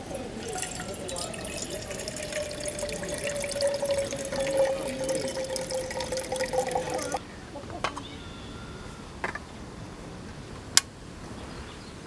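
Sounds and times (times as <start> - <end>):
water running and splashing: 0.0 - 7.2.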